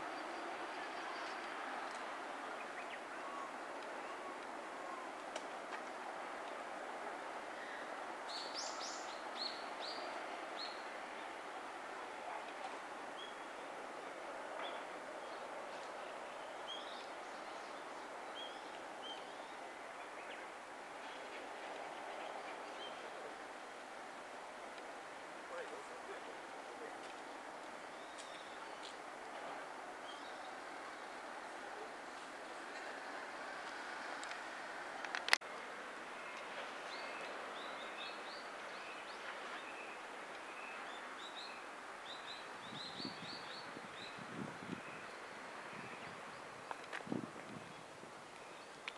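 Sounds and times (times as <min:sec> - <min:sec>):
outdoor background hiss: 0:00.0 - 0:48.9
small birds chirping: 0:27.9 - 0:31.2.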